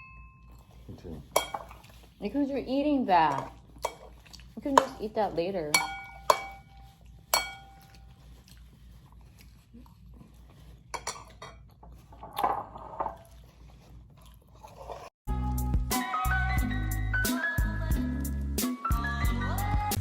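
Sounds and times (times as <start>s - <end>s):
cutlery tapping and scraping: 1.3s - 1.8s, 3.3s - 4.1s, 4.7s - 5.1s, 5.7s - 8.0s, 11.0s - 13.2s
dish clinking: 1.3s - 1.8s, 5.7s - 6.8s, 7.4s - 7.8s.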